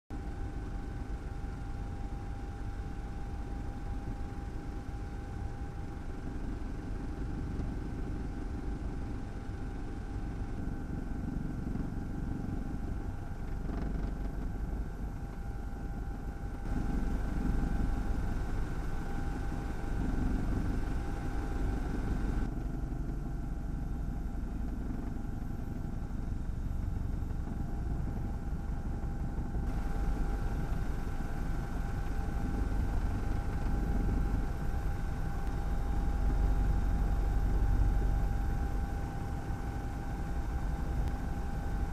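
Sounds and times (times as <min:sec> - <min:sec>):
wind rumble: 0:16.6 - 0:25.1, 0:25.8 - 0:41.9.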